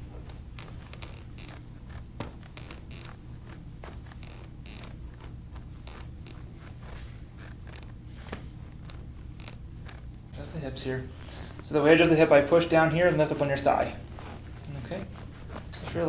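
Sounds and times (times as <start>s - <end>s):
rustling and creaking table: 0.0s - 10.2s, 13.4s - 16.0s
steady low hum: 0.0s - 16.0s.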